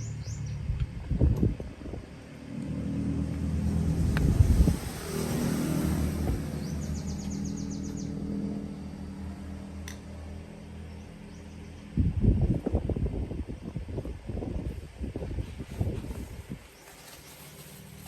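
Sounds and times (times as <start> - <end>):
low engine rumble: 0.0 - 18.0
bird chirping rapidly: 6.4 - 8.4.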